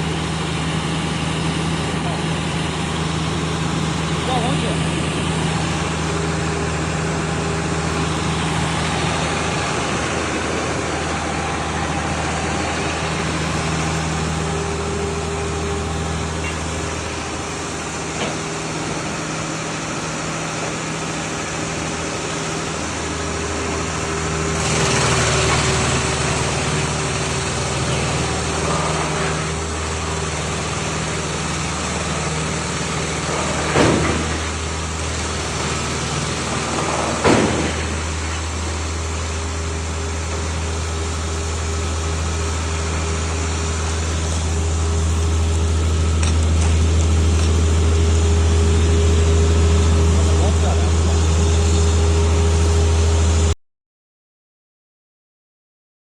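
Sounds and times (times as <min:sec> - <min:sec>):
loud rush of noise: 0:00.0 - 0:40.2
wood chipper diesel engine: 0:00.0 - 0:53.6.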